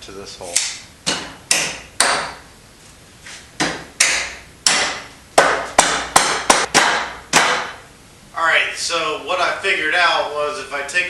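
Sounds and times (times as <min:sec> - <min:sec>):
hammer striking metal: 0:00.6 - 0:02.4, 0:03.6 - 0:07.8.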